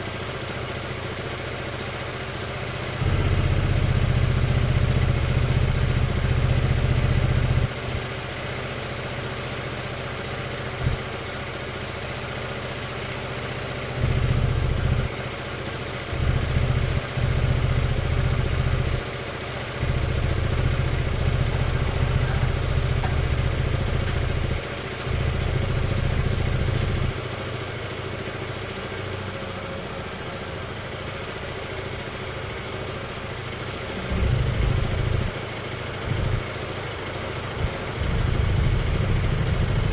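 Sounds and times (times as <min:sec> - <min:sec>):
scooter engine idling: 0:00.0 - 0:39.9
heavy low rumble: 0:14.0 - 0:15.1, 0:16.1 - 0:19.1, 0:19.8 - 0:27.2, 0:34.0 - 0:36.5, 0:37.6 - 0:39.9.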